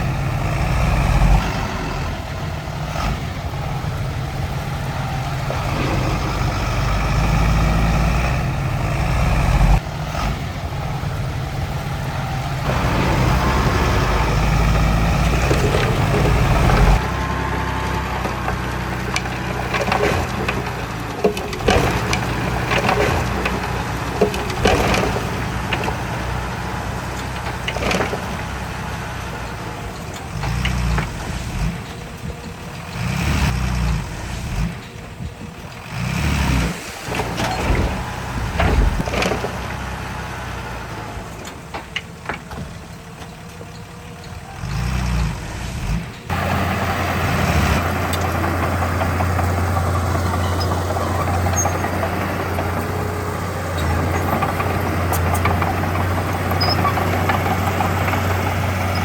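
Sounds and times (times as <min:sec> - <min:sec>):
heavy diesel engines revving: 0:00.0 - 0:59.0
clanks and knocks: 0:12.6 - 0:33.5, 0:34.8 - 0:44.9, 0:47.5 - 0:59.0.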